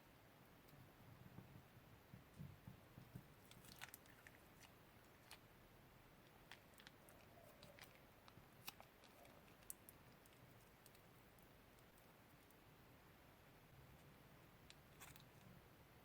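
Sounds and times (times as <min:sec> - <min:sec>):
small clicks and crackles: 0:03.0 - 0:05.5, 0:06.2 - 0:12.6, 0:14.6 - 0:15.6.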